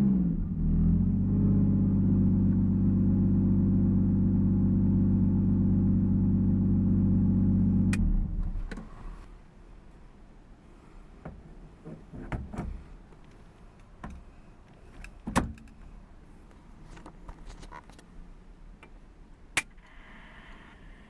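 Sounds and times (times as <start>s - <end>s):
faint steady hum: 7.9s - 21.0s
clicks and thumps handling car: 8.0s - 9.4s, 11.2s - 18.2s.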